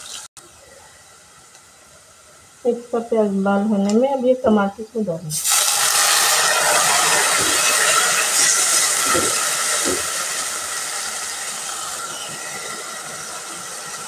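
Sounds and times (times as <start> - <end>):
tomatoes sizzling in hot oil: 0.0 - 0.3, 5.3 - 14.0.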